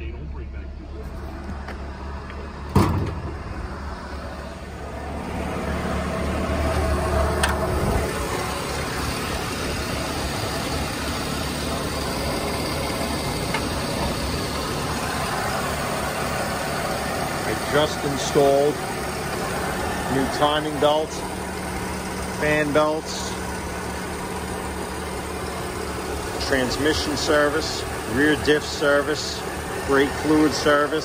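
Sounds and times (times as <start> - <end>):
car engine idling: 0.0 - 31.0
car hood clunk: 1.4 - 3.5.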